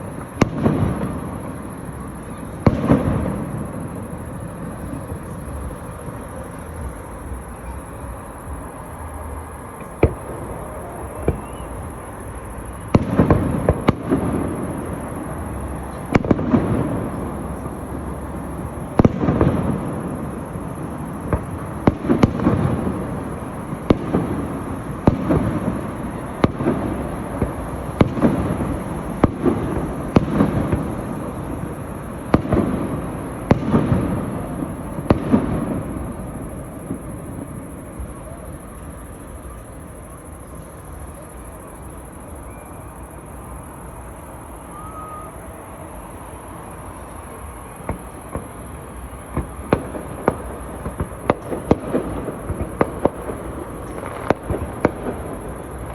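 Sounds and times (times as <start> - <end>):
fireworks exploding: 0.0 - 55.9.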